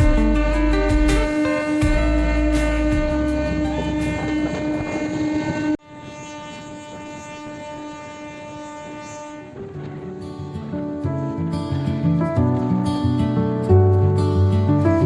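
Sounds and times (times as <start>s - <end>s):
plucked guitar-like notes: 0.0s - 5.5s, 9.8s - 15.0s
music of long held notes: 0.0s - 11.0s.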